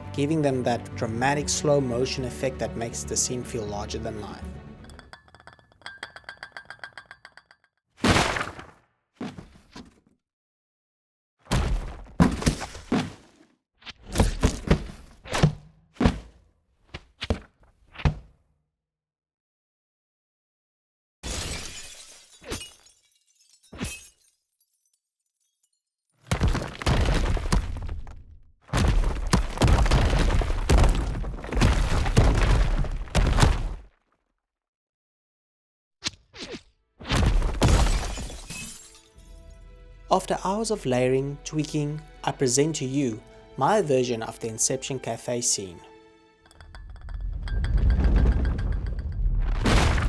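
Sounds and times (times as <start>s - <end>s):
debris shattering and crashing: 21.3s - 24.9s, 28.8s - 33.9s, 37.4s - 39.3s, 46.5s - 50.0s
slowed debris crashes and whooshes: 47.2s - 50.0s.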